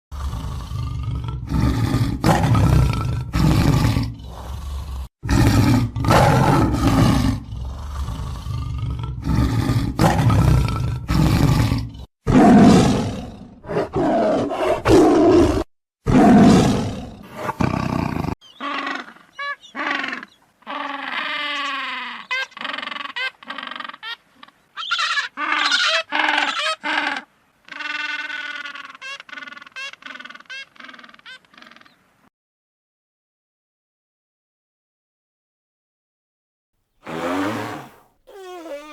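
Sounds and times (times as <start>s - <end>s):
tiger roaring: 0.1s - 18.4s
animal squeaks and chirps: 24.8s - 26.9s.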